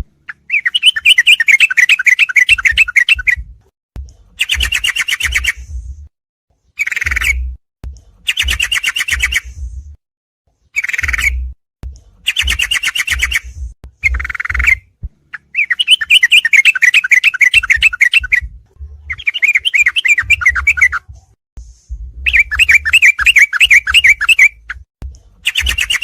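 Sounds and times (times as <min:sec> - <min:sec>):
bird chattering chirps: 0:00.3 - 0:03.4, 0:04.4 - 0:05.6, 0:06.8 - 0:07.4, 0:08.3 - 0:09.5, 0:10.8 - 0:11.4, 0:12.3 - 0:18.4, 0:19.1 - 0:21.0, 0:22.3 - 0:24.7, 0:25.5 - 0:26.0
low rumble: 0:05.6 - 0:06.1, 0:09.5 - 0:10.0, 0:18.4 - 0:19.2.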